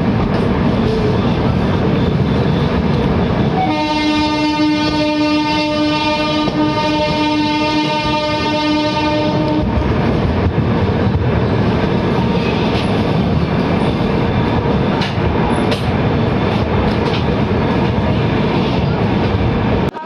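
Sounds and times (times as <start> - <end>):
train wheels rumbling on rails: 0.0 - 20.0
locomotive horn: 3.5 - 10.0.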